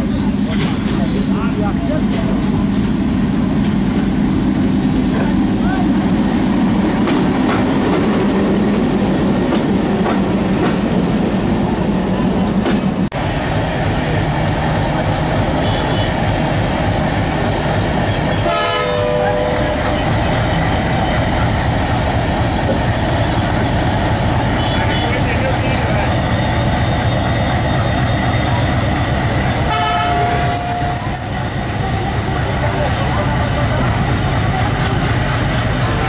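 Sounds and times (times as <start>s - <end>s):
train passing with heavy rumble: 0.0s - 36.0s
train horn blast: 18.4s - 20.2s, 29.7s - 31.2s.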